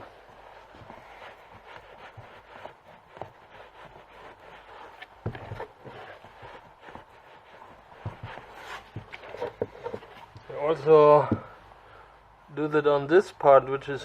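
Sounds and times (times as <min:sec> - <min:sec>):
boot being scuffed and knocked: 0:00.0 - 0:10.5, 0:11.2 - 0:11.6.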